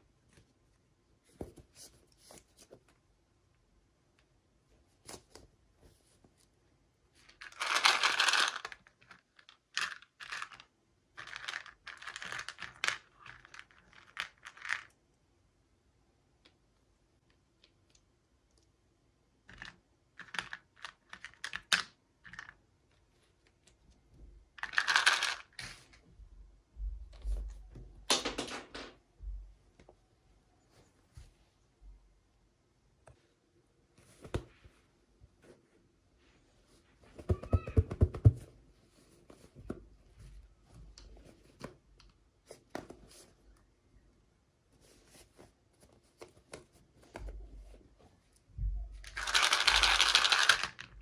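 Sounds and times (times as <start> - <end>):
plastic toy pieces being handled: 7.2 - 15.0, 19.4 - 23.8, 24.6 - 26.0, 49.0 - 51.0
plastic pieces clicking and tapping: 49.1 - 50.9.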